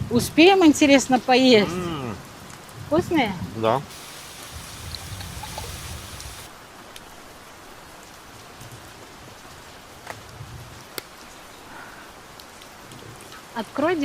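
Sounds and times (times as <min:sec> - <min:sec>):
rain falling steadily: 0:03.8 - 0:14.0.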